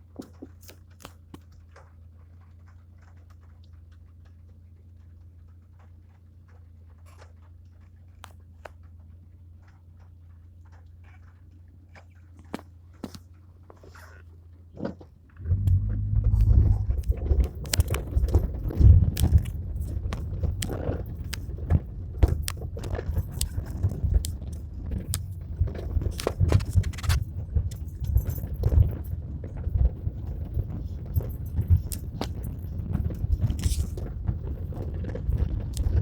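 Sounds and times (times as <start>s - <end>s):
faint steady hum: 15.3s - 36.0s
rain drops crackling: 15.4s - 36.0s.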